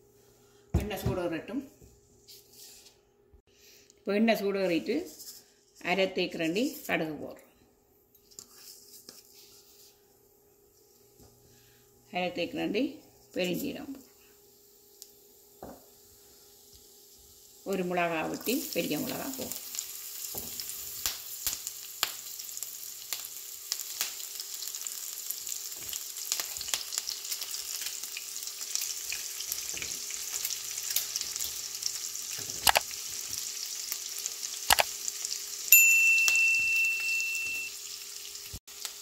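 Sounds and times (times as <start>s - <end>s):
food sizzling in oil: 13.0s - 39.0s.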